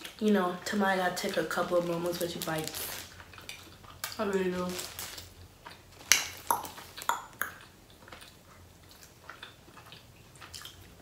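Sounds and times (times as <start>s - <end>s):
mouth smacks and clicks: 6.1s - 8.3s.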